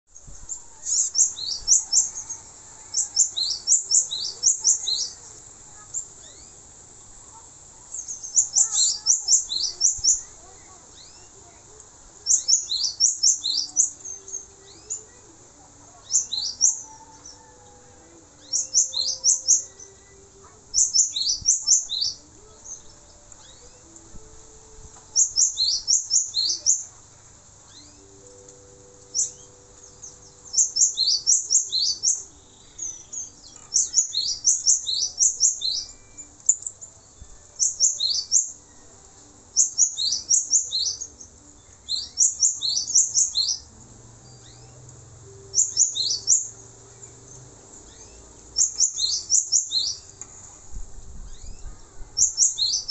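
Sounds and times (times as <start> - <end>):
bird singing high sweeping notes: 0.1 - 6.6, 12.2 - 26.9, 27.6 - 50.2, 51.2 - 52.9.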